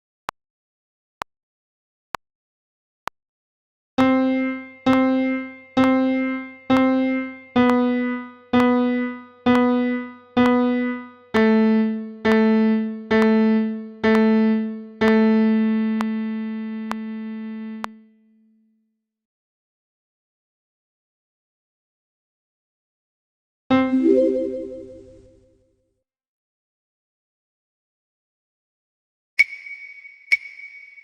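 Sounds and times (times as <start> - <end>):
metronome ticking: 4.0 - 11.7.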